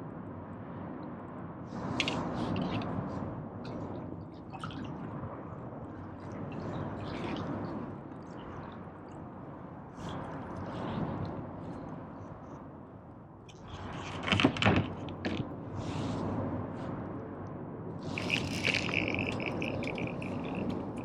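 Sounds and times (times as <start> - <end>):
water splashing and dripping: 3.6 - 5.0, 18.2 - 21.0.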